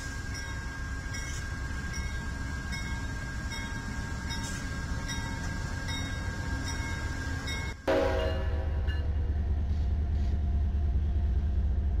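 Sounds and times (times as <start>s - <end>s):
train rolling past: 0.0s - 12.0s.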